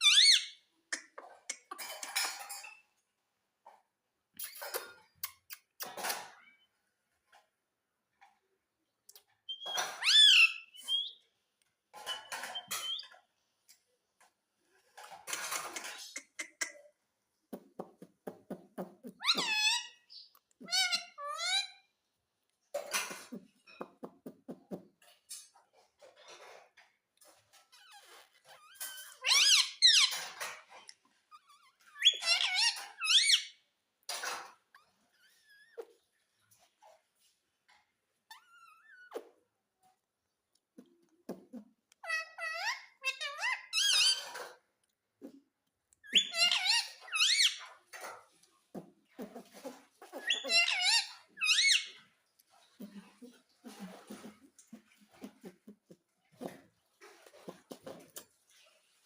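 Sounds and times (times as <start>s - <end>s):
parakeet shrill squeaky calls: 0.0s - 0.6s, 9.5s - 11.2s, 12.5s - 13.2s, 19.2s - 21.8s, 28.6s - 30.2s, 31.4s - 33.6s, 42.0s - 44.4s, 46.1s - 47.7s, 50.2s - 52.0s
parrot squawking: 0.0s - 0.6s, 9.5s - 11.2s, 19.1s - 21.8s, 28.8s - 30.3s, 31.8s - 33.6s, 42.0s - 44.5s, 46.1s - 47.7s, 49.2s - 52.0s
parrot scratchy chatter: 18.4s - 21.8s, 27.3s - 33.6s, 41.4s - 44.6s, 46.1s - 58.5s
parakeet raspy squawk: 19.2s - 21.8s, 46.1s - 47.7s, 49.2s - 52.0s.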